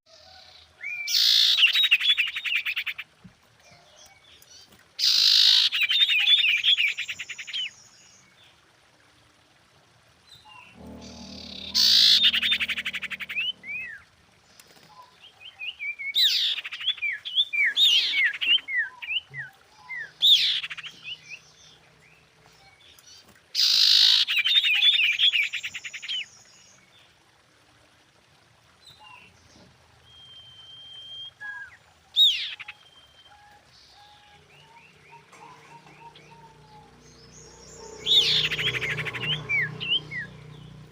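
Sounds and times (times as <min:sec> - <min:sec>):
buzzy rattling bird trills: 0:10.6 - 0:14.1.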